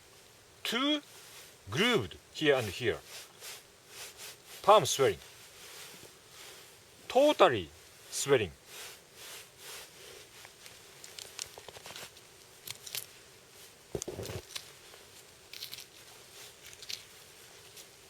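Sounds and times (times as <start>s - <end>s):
knives clicking and rustling: 15.5s - 16.0s, 16.6s - 17.1s.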